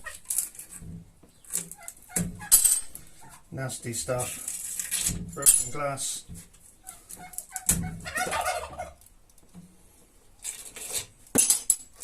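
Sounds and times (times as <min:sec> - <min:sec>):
turkey gobbling: 0:01.8 - 0:02.5, 0:06.8 - 0:09.0.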